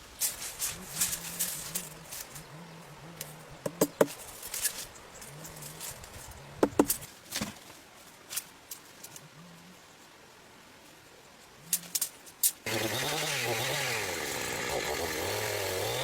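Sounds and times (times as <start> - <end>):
low repeated cooing: 0.7 - 4.0
sharp knocks and taps: 3.6 - 4.2, 6.6 - 7.0.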